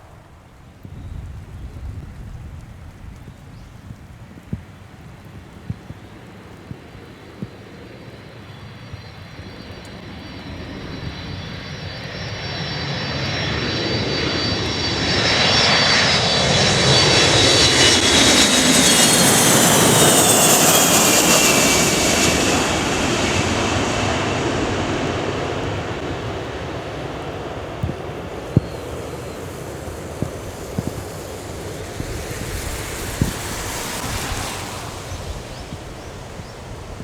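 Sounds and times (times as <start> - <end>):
jet aircraft passing: 0.0 - 37.0
high engine whine: 8.9 - 37.0.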